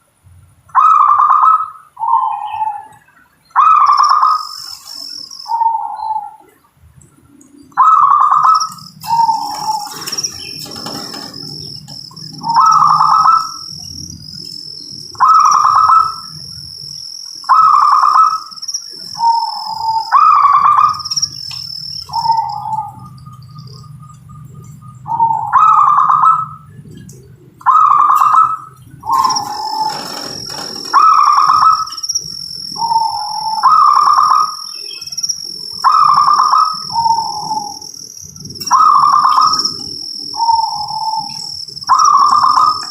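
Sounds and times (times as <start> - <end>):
steady high-pitched whine: 0.0 - 42.9
dove cooing: 7.8 - 14.1, 19.0 - 21.1, 22.1 - 23.9, 27.6 - 32.0, 35.8 - 37.8, 38.6 - 42.9.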